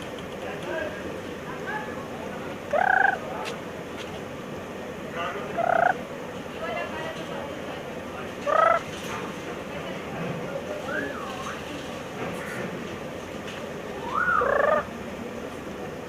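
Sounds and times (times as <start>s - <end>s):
bird rising call: 2.7s - 3.2s, 5.5s - 6.0s, 14.0s - 14.9s.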